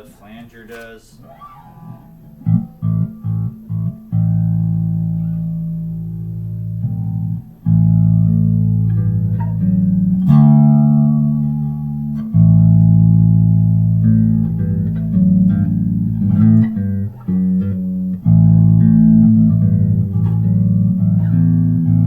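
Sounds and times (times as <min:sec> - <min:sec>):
electric bass guitar with flanger: 0:01.2 - 0:22.0.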